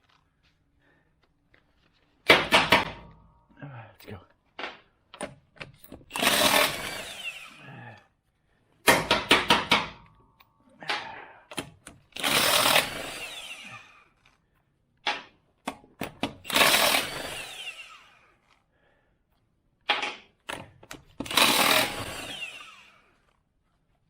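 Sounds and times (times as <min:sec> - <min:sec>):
impact wrench whirring: 0:05.9 - 0:07.6, 0:11.6 - 0:14.4, 0:16.0 - 0:18.6, 0:20.6 - 0:23.4.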